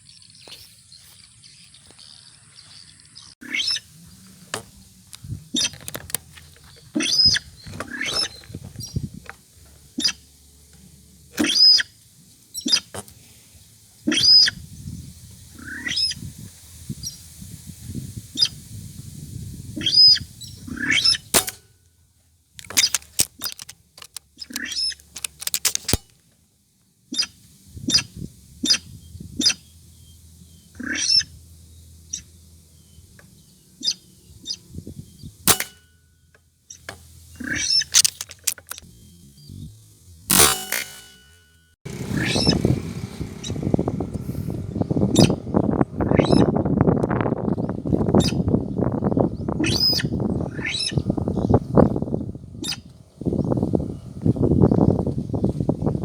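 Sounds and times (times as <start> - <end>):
sharp rail bird calls: 9.9 - 10.3, 11.3 - 13.0.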